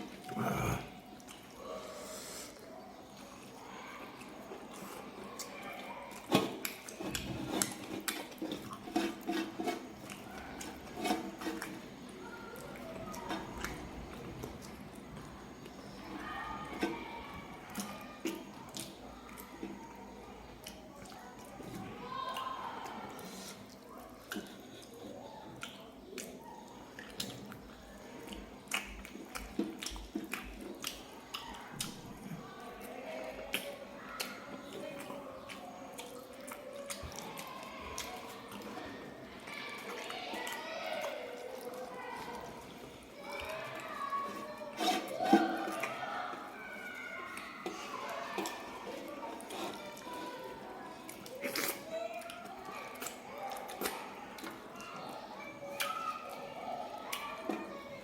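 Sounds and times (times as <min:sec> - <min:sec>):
wet chewing: 0:00.0 - 0:57.8
lip smacks: 0:28.2 - 0:32.0, 0:51.0 - 0:54.6.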